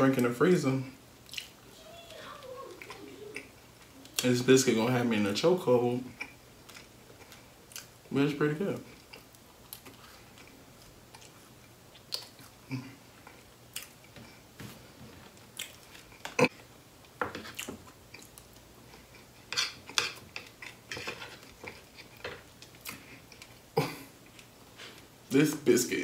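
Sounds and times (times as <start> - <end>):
person chewing biscuit: 1.2 - 1.6, 6.1 - 8.1, 8.8 - 14.6, 15.2 - 25.1.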